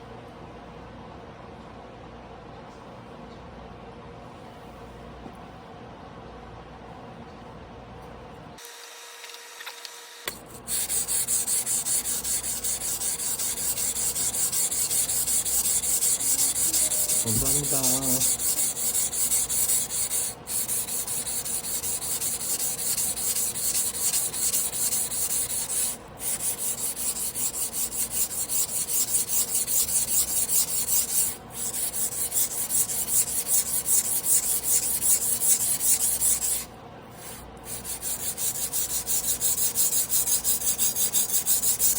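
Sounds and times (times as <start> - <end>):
knife rasping on whetstone: 10.5 - 41.9.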